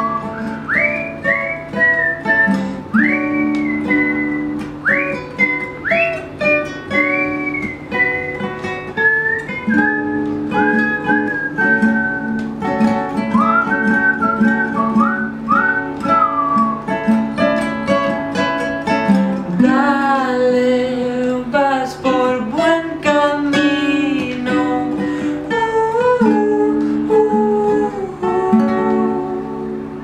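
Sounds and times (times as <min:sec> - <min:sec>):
whistled melody: 0:00.0 - 0:17.7
acoustic guitar chords: 0:00.0 - 0:30.0.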